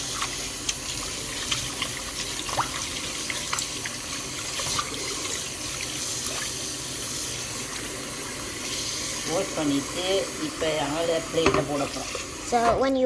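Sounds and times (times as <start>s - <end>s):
tap running into a sink: 11.2s - 12.3s.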